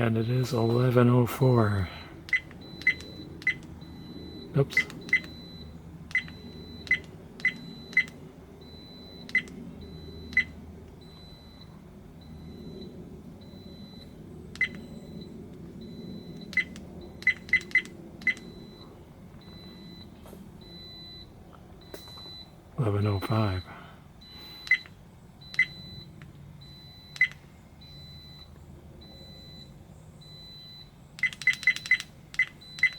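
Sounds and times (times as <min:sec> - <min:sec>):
faint background hum: 0:00.0 - 0:32.9
electronic button beeps: 0:02.3 - 0:11.7, 0:15.8 - 0:20.1, 0:23.2 - 0:26.1, 0:30.3 - 0:32.9.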